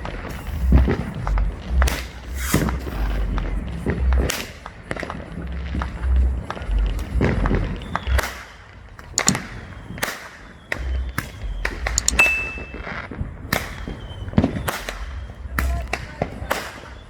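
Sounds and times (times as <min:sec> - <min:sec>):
fireworks bangs and cracks: 0:00.0 - 0:12.0, 0:12.6 - 0:17.0
low fireworks booms: 0:00.0 - 0:12.0, 0:12.6 - 0:17.0
high firework whistle: 0:07.9 - 0:17.0.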